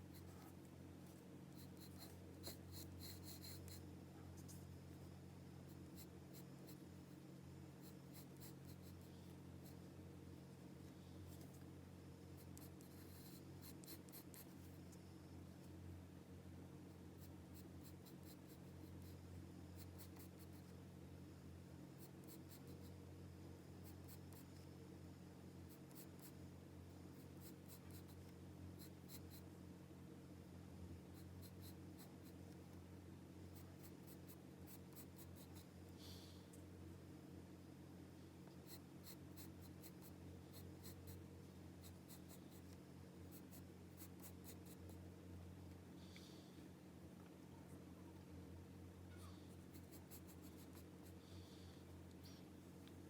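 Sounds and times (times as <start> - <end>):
pencil scratching on paper: 1.6 - 3.8, 12.4 - 14.6, 43.3 - 44.9, 49.6 - 51.2.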